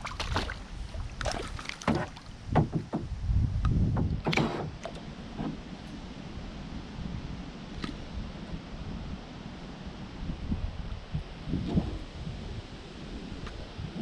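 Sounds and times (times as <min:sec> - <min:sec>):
canoe splashes and knocks: 0:00.0 - 0:03.2
wind rumbling on microphone: 0:00.0 - 0:14.0.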